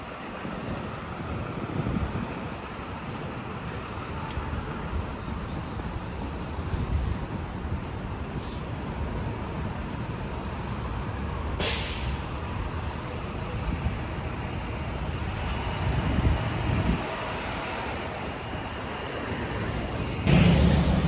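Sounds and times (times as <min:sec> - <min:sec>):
traffic hum: 0:00.0 - 0:21.0
short sharp hiss: 0:11.6 - 0:12.2
vehicle passing: 0:19.4 - 0:21.0.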